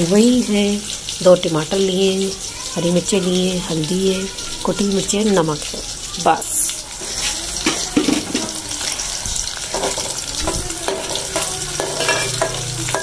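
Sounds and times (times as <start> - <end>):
onions sizzling in hot oil: 0.0 - 13.0
ladle stirring and knocking pan: 7.0 - 13.0.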